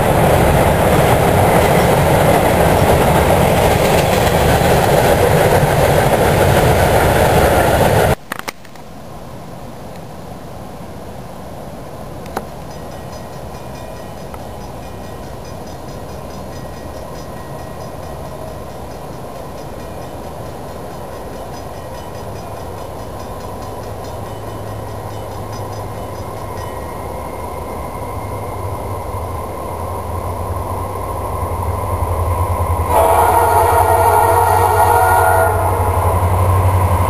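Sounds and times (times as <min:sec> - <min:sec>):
diesel locomotive drone and rumble: 0:00.0 - 0:08.2, 0:10.6 - 0:37.0.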